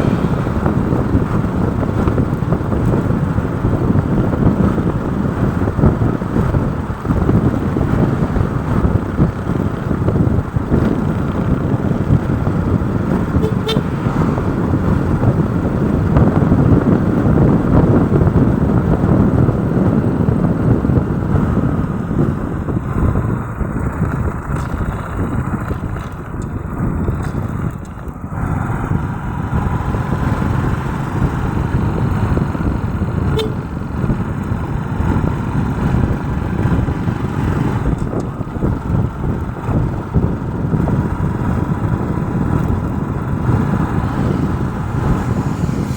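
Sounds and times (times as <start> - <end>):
road traffic and engine noise: 0.0 - 45.9
wind rumble on microphone: 0.0 - 45.9
brief horn toots: 13.3 - 14.4, 33.3 - 33.6.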